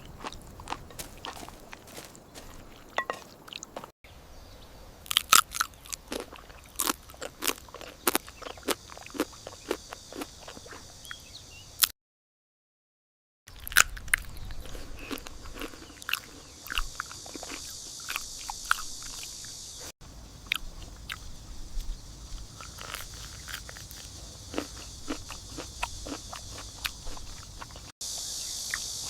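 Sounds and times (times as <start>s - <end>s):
crunching and chewing food: 0.0s - 3.9s, 5.1s - 11.2s, 13.6s - 29.0s
steady high hiss: 16.7s - 29.0s.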